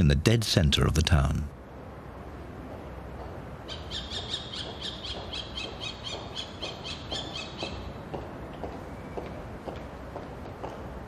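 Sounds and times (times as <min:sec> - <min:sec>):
bird calling in high chirps: 0:03.7 - 0:08.0.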